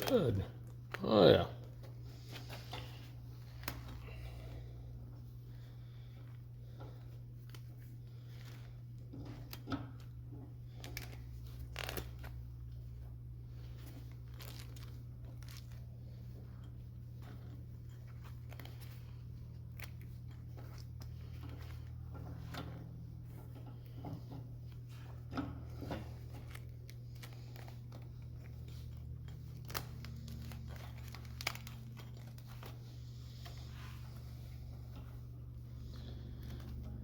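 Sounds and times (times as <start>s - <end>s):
steady low hum: 0.0s - 37.0s
wire rope clicks and scrapes: 6.0s - 37.0s.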